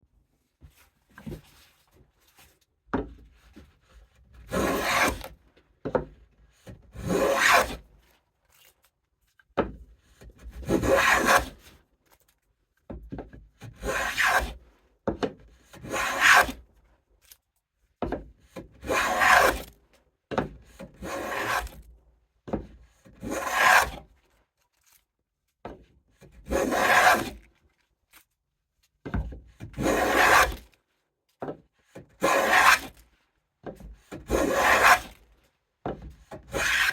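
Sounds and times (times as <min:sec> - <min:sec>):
hand plane rasping strokes: 0:04.4 - 0:05.3, 0:06.9 - 0:07.8, 0:10.6 - 0:11.6, 0:13.8 - 0:14.6, 0:15.8 - 0:16.6, 0:18.8 - 0:19.7, 0:20.7 - 0:21.8, 0:23.2 - 0:24.0, 0:26.3 - 0:27.4, 0:29.6 - 0:30.6, 0:32.2 - 0:33.0, 0:34.0 - 0:35.2, 0:36.2 - 0:36.9.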